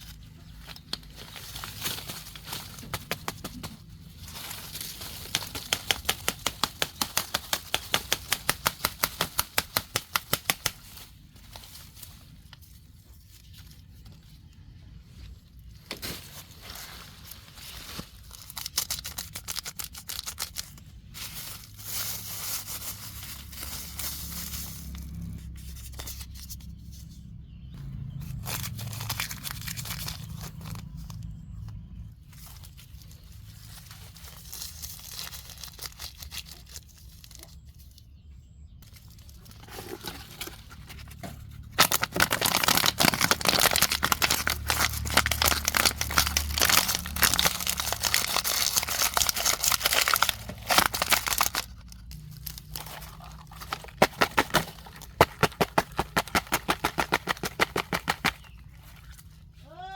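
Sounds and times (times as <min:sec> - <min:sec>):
plastic bags crinkling: 0:00.1 - 0:12.6, 0:38.8 - 0:59.5.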